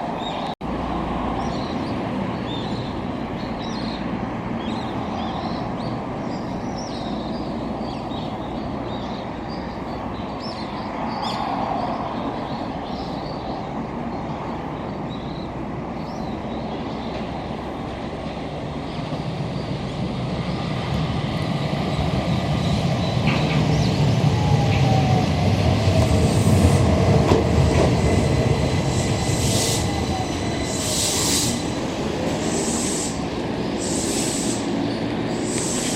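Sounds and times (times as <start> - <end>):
train approaching: 0.0 - 35.9
birds chirping: 1.3 - 35.9.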